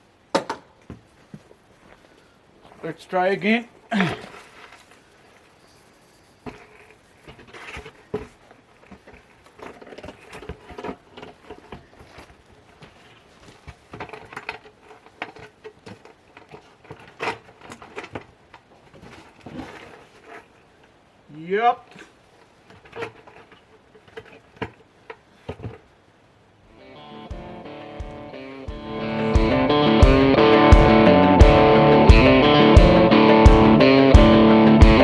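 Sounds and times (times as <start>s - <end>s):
cardboard tube scraping and knocking: 6.4s - 20.6s, 21.9s - 25.9s.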